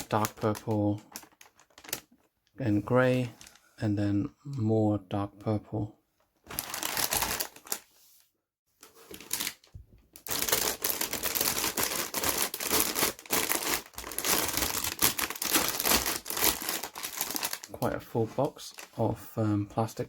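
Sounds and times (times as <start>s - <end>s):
plastic bag crinkling: 0.0s - 2.3s, 3.3s - 3.7s, 6.5s - 7.9s, 8.8s - 19.0s.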